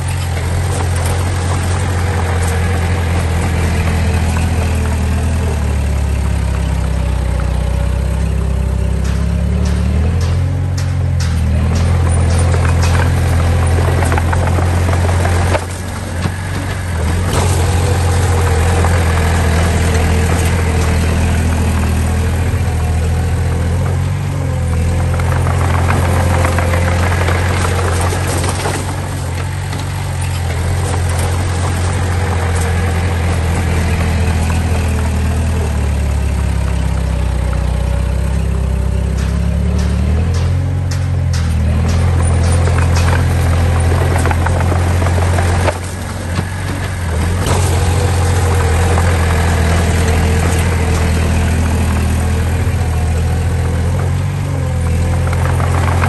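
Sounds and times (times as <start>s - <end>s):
diesel engine rumbling: 0.0s - 56.0s
sharp metallic clanks: 0.0s - 56.0s.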